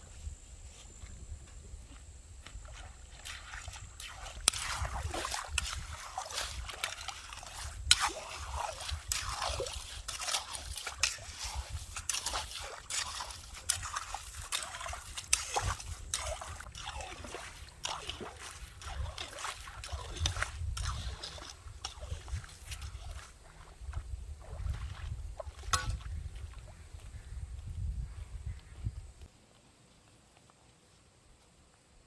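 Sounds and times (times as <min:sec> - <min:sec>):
wet sand and pebbles scraping: 0:00.0 - 0:29.2
shallow water sloshing: 0:02.5 - 0:26.7.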